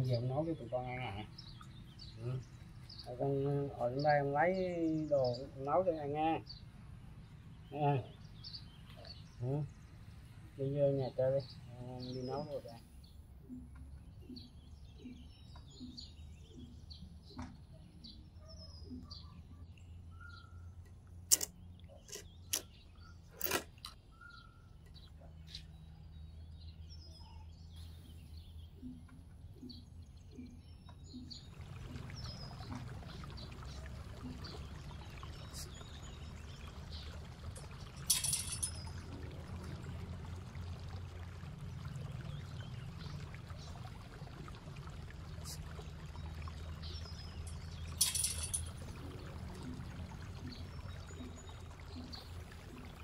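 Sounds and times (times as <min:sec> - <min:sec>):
low steady hum: 0:00.0 - 0:53.0
small birds chirping: 0:00.0 - 0:53.0
running water rushing: 0:31.3 - 0:53.0.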